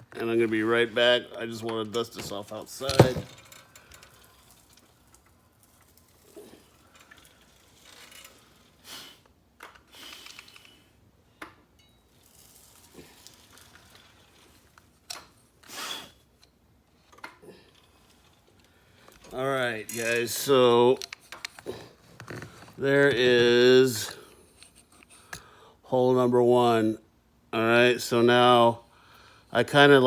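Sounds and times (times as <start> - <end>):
objects being handled: 1.6 - 8.8, 11.4 - 22.8.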